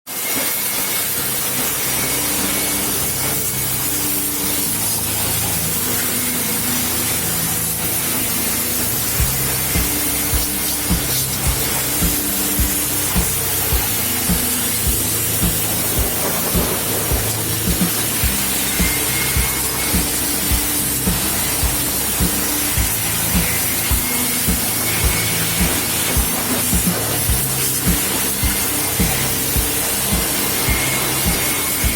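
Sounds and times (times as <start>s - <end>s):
high-pressure water spray hissing: 0.1s - 31.9s
background music: 1.0s - 31.9s
drum beat: 9.2s - 31.9s.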